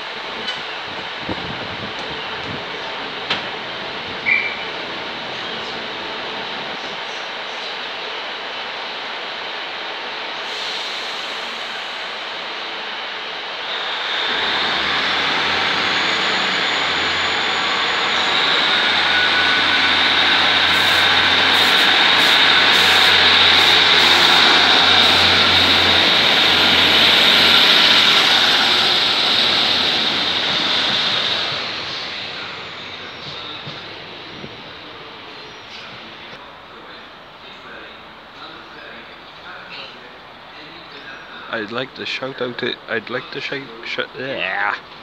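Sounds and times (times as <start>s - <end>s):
train wheels rushing on rails: 0.0s - 7.8s, 8.4s - 36.4s
diesel engine hum: 13.7s - 34.6s
high whine: 13.7s - 37.0s.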